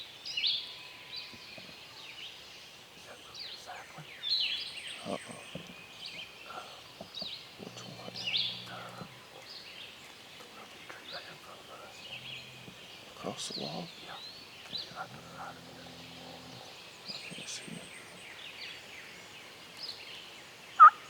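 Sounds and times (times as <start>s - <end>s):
songbirds singing: 0.0s - 21.0s
faint low hum: 4.9s - 18.3s.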